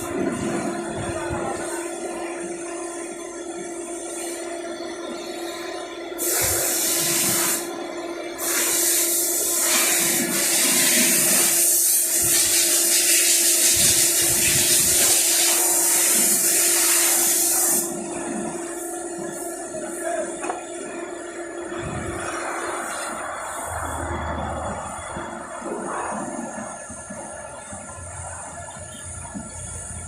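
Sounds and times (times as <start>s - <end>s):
steady hum: 0.0s - 30.0s
pressure washer spraying water: 6.2s - 7.7s, 8.4s - 21.6s, 22.2s - 30.0s.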